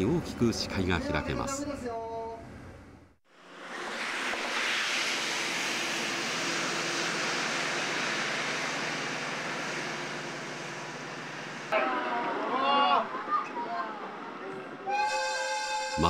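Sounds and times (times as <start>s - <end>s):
train rushing noise: 3.4s - 16.0s.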